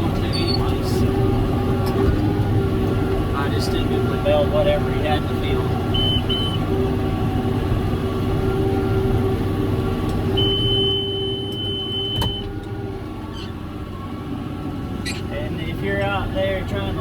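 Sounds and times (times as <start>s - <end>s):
tractor diesel engine running: 0.0s - 17.0s
high-pitched alarm beep: 6.0s - 6.6s, 10.4s - 12.5s.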